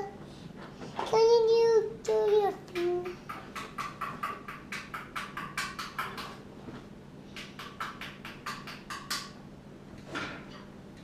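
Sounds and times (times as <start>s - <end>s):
faint low hum: 0.0s - 4.6s
fingers tapping rapidly: 2.1s - 6.4s, 7.4s - 9.3s.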